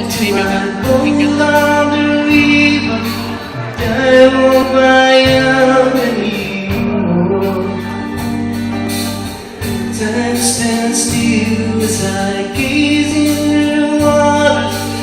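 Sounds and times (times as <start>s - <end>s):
live folk-rock band: 0.0s - 15.0s
low bass line: 0.0s - 15.0s.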